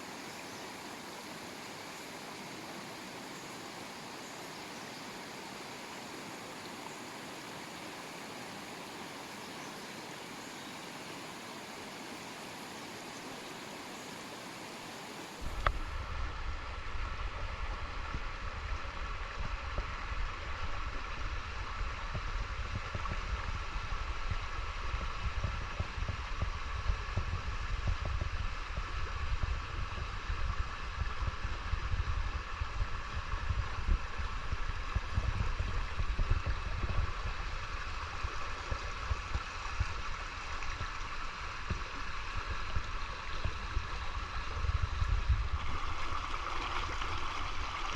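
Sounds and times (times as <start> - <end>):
river water rushing and gurgling: 0.0 - 22.0, 34.2 - 47.9
steady even hiss: 0.0 - 47.9.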